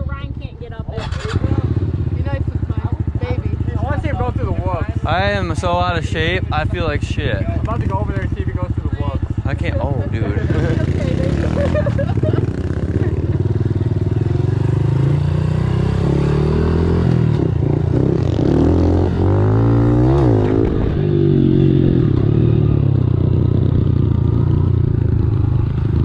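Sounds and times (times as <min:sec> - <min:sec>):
pit bike engine revving: 0:00.9 - 0:26.0.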